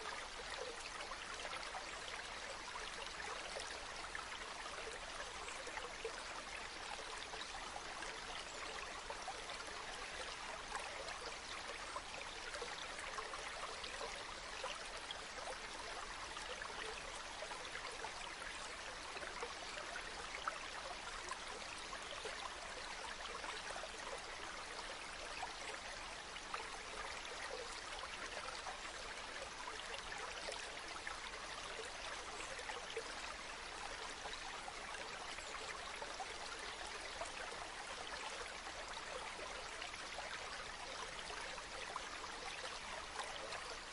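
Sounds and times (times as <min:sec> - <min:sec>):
stream water trickling: 0:00.0 - 0:43.9.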